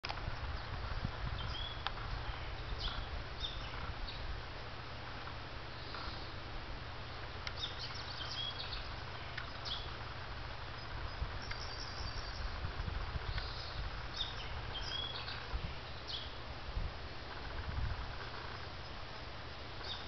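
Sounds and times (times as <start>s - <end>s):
steady low rumble: 0.0s - 20.0s
small birds chirping: 0.1s - 6.5s, 7.3s - 16.5s, 17.2s - 20.0s.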